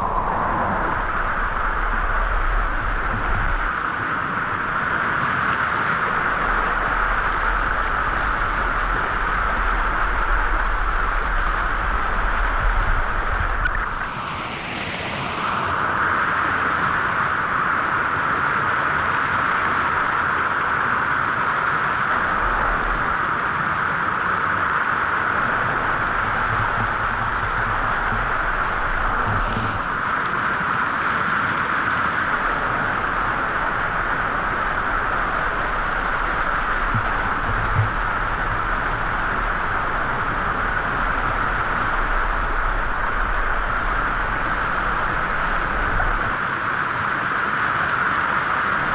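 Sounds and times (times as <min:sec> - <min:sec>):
waterfall rushing: 0:13.7 - 0:16.2.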